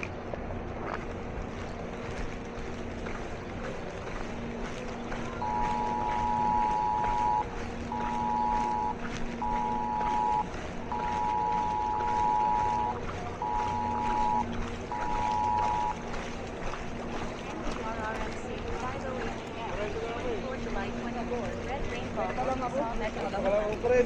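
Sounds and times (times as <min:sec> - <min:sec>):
low engine hum: 0:00.0 - 0:24.0
electronic two-pitch beeping: 0:05.4 - 0:16.0.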